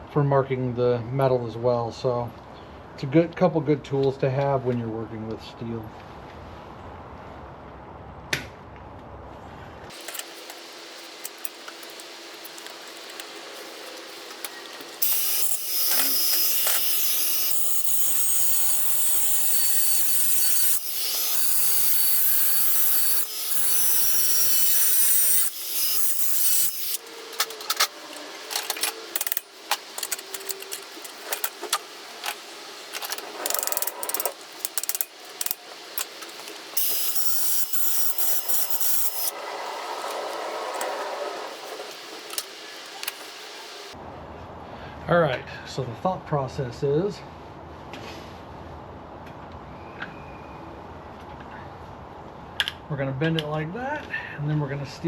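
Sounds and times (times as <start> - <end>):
steel being cut rasping: 9.9 - 44.0
metal pieces clicking and knocking: 14.3 - 39.3.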